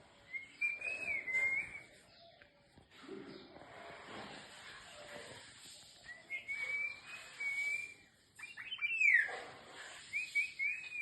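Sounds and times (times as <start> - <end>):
oriole singing fluty whistles: 0.3 - 1.9, 6.1 - 9.3, 10.1 - 11.0.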